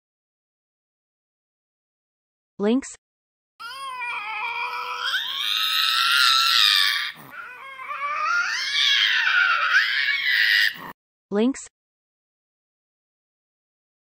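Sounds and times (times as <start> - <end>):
lynx yowling: 3.6 - 10.9.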